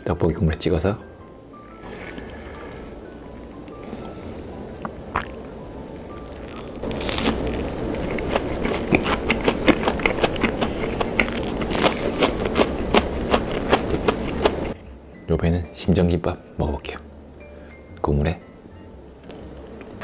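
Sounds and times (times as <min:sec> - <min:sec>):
crunchy biting and chewing: 0:04.9 - 0:05.4, 0:06.2 - 0:14.8.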